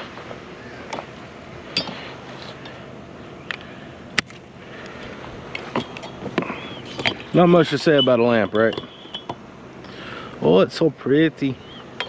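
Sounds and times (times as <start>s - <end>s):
hard items clinking and knocking: 5.5s - 9.4s.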